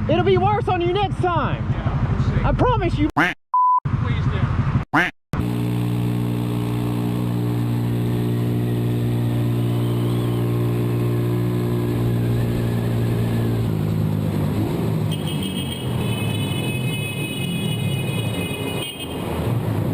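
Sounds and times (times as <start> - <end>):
vehicle engine running: 5.4 - 19.9.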